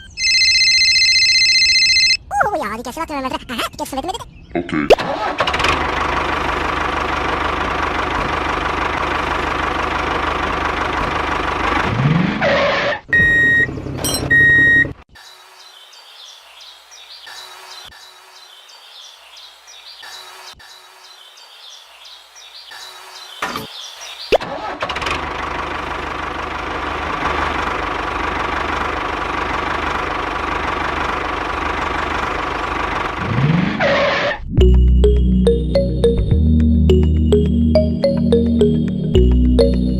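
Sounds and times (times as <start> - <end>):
tractor engine running: 5.0 - 12.4, 24.4 - 33.5, 34.6 - 39.9
loud beeps: 13.2 - 14.9.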